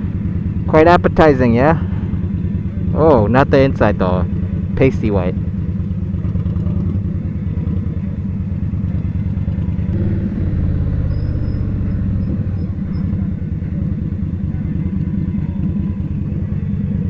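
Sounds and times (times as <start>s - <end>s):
motorcycle engine running: 9.8s - 15.4s.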